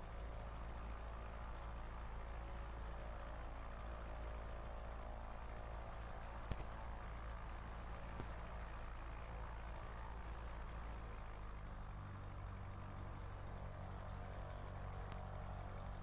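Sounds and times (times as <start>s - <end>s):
sharp click: 6.5s - 6.8s.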